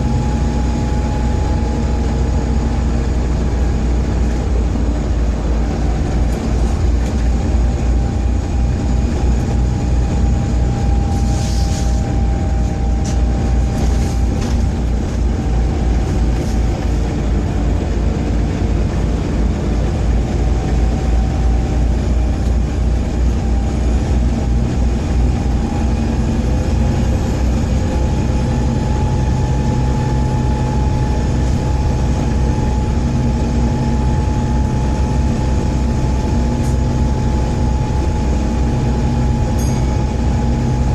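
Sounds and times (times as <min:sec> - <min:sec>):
bus diesel engine rumbling: 0:00.0 - 0:40.9.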